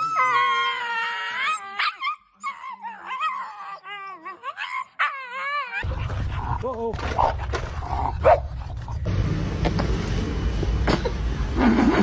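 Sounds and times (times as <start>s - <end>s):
dog whining: 0.0s - 5.9s.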